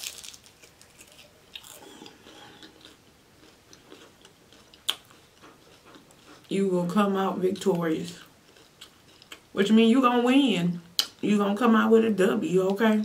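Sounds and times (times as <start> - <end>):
chewing crispy food: 0.0 - 9.6.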